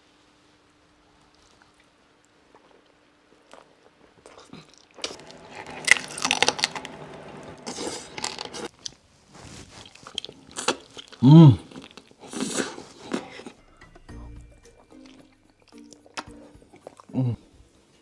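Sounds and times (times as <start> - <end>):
faint steady hum: 0.0 - 9.0
crunchy chewing: 15.0 - 17.2.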